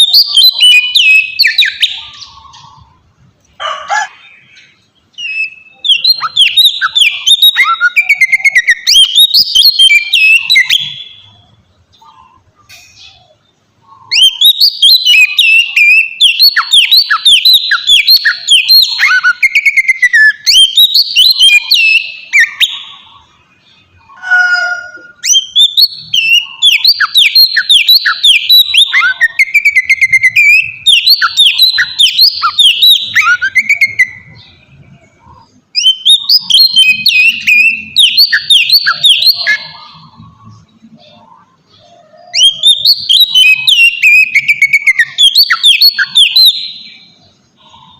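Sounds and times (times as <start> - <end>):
bird singing whistled notes: 0.0 - 3.0, 4.2 - 47.9.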